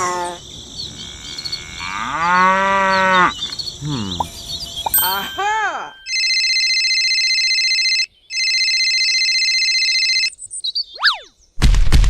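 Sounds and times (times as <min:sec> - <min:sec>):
trilling telephone ring: 0:04.9 - 0:10.4.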